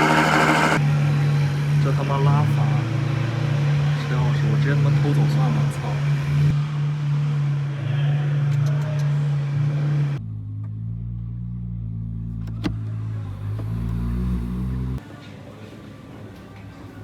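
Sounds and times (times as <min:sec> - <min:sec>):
car engine idling: 0:00.0 - 0:00.8
deep car engine rumble: 0:10.1 - 0:15.0.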